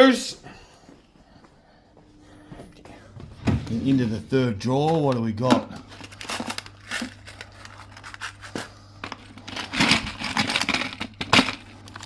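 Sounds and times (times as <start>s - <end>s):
hands rummaging through loose screws: 5.9s - 12.0s.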